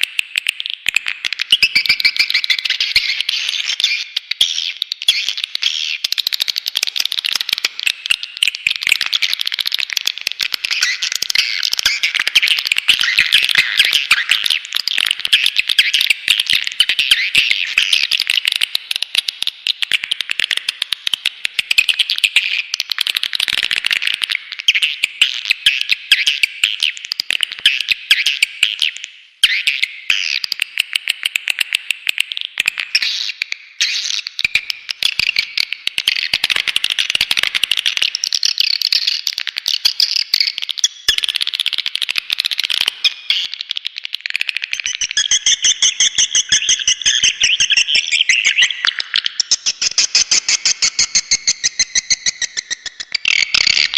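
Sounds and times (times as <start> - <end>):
swiftlet calls rapid high chirps: 44.7 - 53.9.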